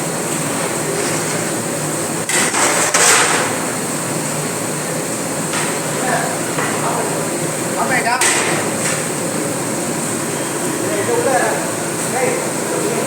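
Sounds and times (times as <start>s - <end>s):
sharp knocks and clatter: 2.3s - 3.5s.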